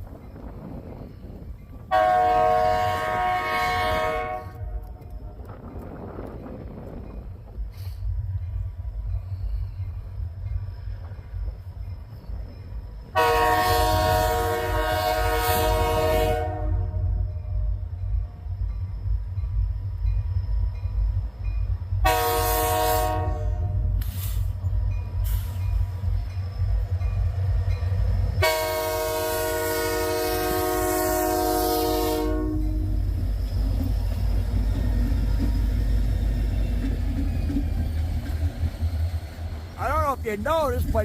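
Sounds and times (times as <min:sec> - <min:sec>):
wind on microphone: 0:00.0 - 0:10.0
train rumble: 0:00.0 - 0:41.0
locomotive air horn blasts: 0:01.9 - 0:05.0, 0:13.2 - 0:17.6, 0:22.0 - 0:24.0, 0:28.4 - 0:33.0.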